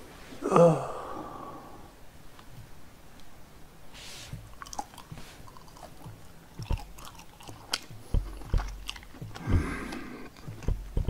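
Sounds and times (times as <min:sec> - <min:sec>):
person chewing fried pork: 0:04.4 - 0:11.0
sharp crunching clicks: 0:04.5 - 0:11.0.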